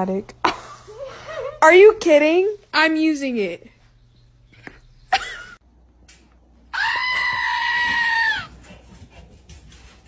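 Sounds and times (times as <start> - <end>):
animal high-pitched scream: 6.7 - 8.5.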